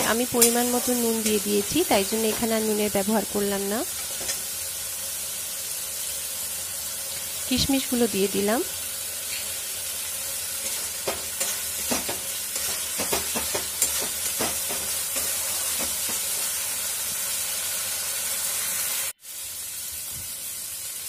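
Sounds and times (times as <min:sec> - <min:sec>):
paste sizzling in a metal pan: 0:00.0 - 0:21.0
spatula scraping a pan: 0:10.6 - 0:16.5.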